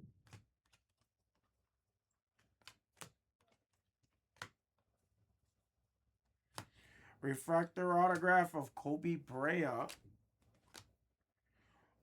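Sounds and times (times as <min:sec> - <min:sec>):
trading cards clicking: 0:09.2 - 0:10.9.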